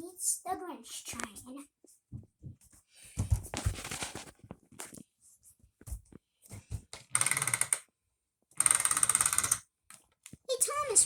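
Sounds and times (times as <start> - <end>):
toy train motor whining and clicking: 8.6 - 9.6.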